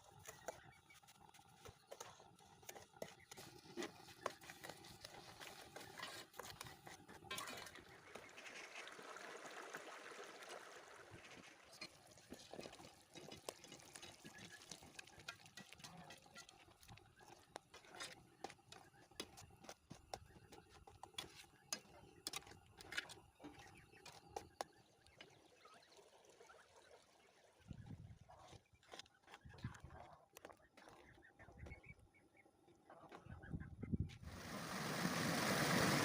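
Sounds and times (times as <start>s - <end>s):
liquid trickling: 7.0s - 17.0s.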